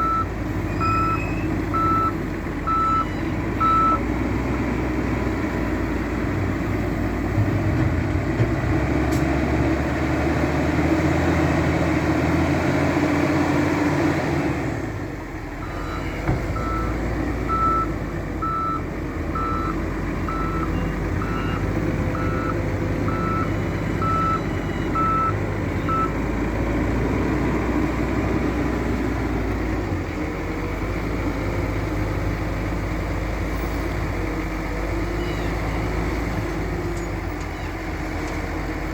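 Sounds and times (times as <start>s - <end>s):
reversing alarm beeps: 0.0s - 4.0s, 15.6s - 16.9s, 17.5s - 18.8s, 19.4s - 26.1s
heavy diesel machinery running: 0.0s - 38.9s.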